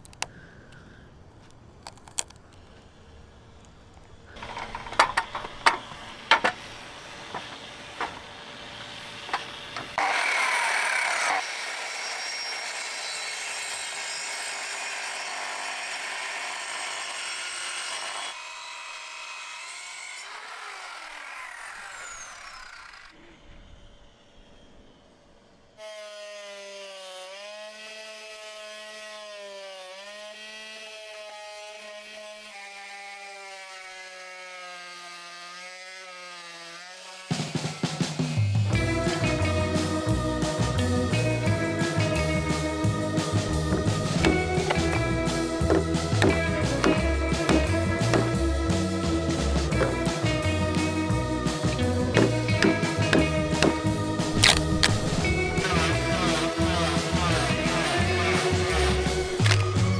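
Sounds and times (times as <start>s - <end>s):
rasping of wood being cut: 5.7s - 23.1s, 43.7s - 50.0s, 51.8s - 59.9s
music with wavering melody: 38.8s - 59.9s.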